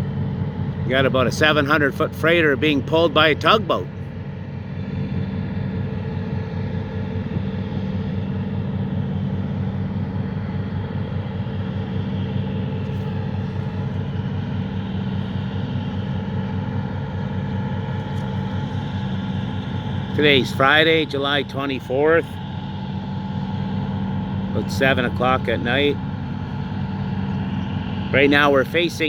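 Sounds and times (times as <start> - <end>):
diesel engines droning: 0.0 - 29.0.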